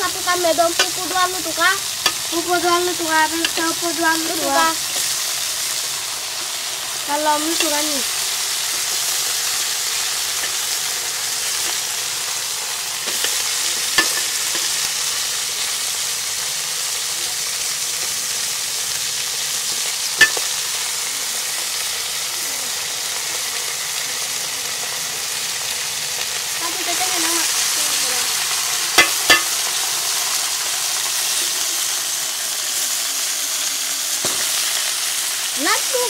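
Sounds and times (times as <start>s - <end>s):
meat sizzling in oil: 0.0s - 36.0s
metal spoon clicking against pan: 2.0s - 2.3s, 13.1s - 14.8s, 29.0s - 29.6s.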